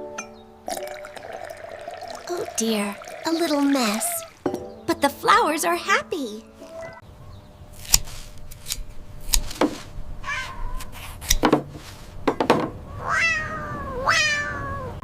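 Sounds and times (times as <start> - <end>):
cat-like meow: 10.2 - 10.9, 12.9 - 15.0.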